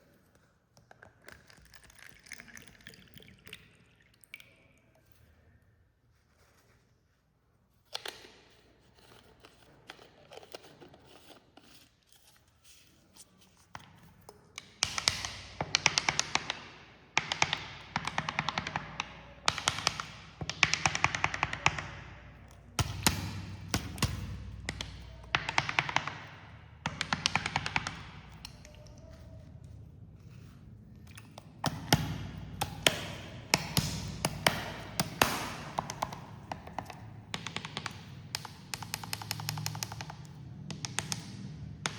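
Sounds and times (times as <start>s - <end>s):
cola pouring into glasses: 1.2s - 5.1s.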